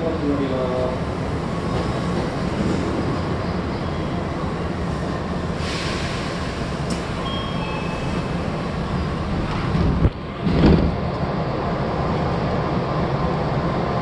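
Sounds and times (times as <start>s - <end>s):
train equipment running: 0.0s - 13.8s
click: 6.9s - 7.1s.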